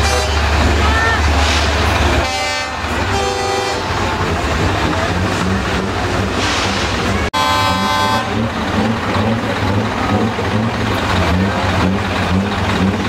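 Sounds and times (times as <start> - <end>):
truck horn: 0.0 - 1.2, 2.2 - 4.1, 7.3 - 9.4
truck engines rumbling: 0.0 - 13.0.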